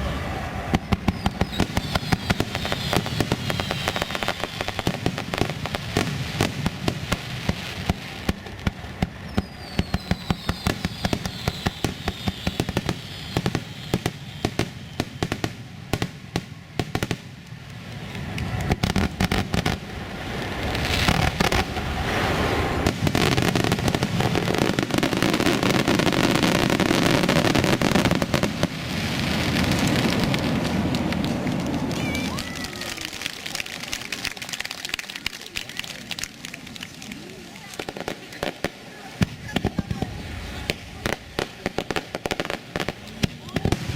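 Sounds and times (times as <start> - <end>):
falling firework whistle: 0.0 - 6.8, 7.8 - 17.2, 18.5 - 33.3
fireworks crackling and popping: 0.0 - 43.9.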